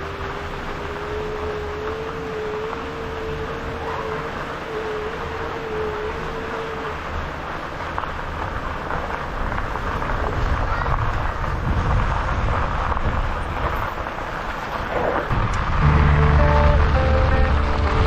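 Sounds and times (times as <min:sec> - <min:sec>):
tyres rolling on gravel: 0:00.0 - 0:18.0
wind on microphone: 0:08.3 - 0:18.0.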